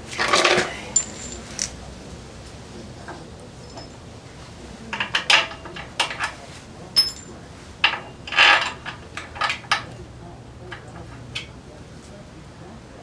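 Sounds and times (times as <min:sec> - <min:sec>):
metal tools clanking: 0:00.0 - 0:02.0, 0:02.8 - 0:04.1, 0:04.9 - 0:11.5.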